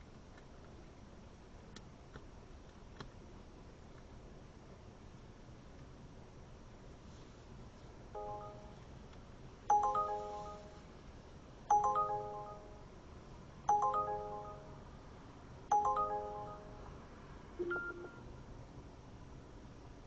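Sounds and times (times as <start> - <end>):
phone ringtone chime: 8.2 - 8.8, 9.7 - 10.9, 11.7 - 13.0, 13.7 - 15.0, 15.7 - 16.9, 17.6 - 18.1.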